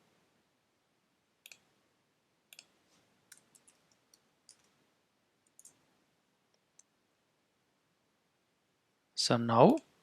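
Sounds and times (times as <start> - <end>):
mouse and keyboard clicks: 2.5 - 2.7, 3.3 - 4.8, 5.4 - 5.8.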